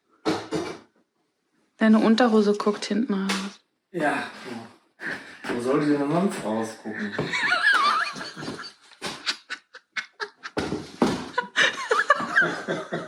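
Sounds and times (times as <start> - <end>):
person laughing: 4.0 - 13.0.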